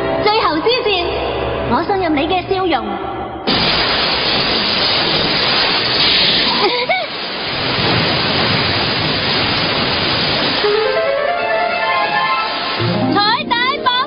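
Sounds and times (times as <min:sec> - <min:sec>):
cartoon rushing noise: 0:10.4 - 0:13.0.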